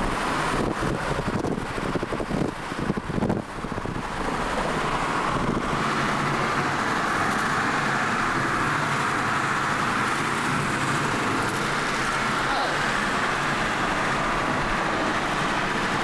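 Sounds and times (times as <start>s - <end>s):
low engine hum: 0.0s - 16.0s
road and wind noise: 0.0s - 16.0s.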